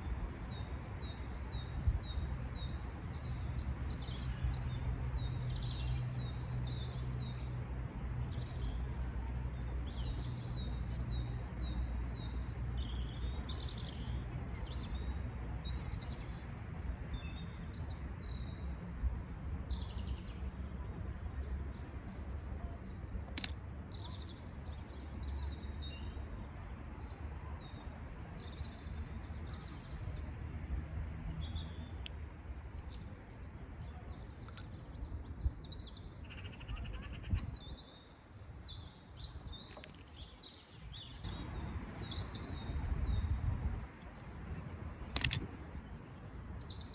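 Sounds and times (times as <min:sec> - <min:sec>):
sharp clicks: 0:23.3 - 0:23.6, 0:45.1 - 0:45.6.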